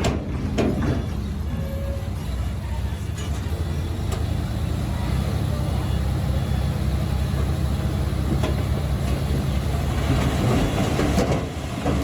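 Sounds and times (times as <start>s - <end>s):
bulldozer diesel engine running: 0.0s - 12.0s
steel tracks clattering: 8.2s - 12.0s.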